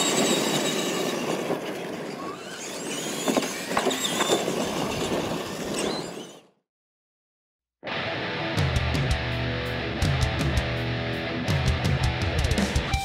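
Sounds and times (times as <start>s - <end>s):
tyre and track noise: 0.0s - 6.5s.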